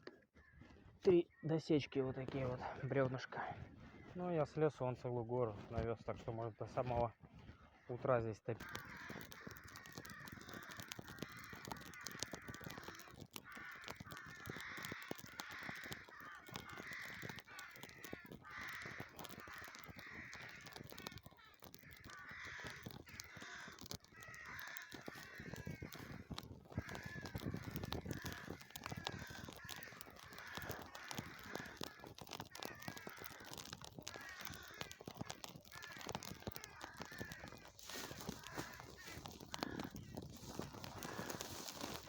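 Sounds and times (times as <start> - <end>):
crows cawing: 0.0 - 1.6, 2.2 - 42.0
rustling: 8.6 - 42.0.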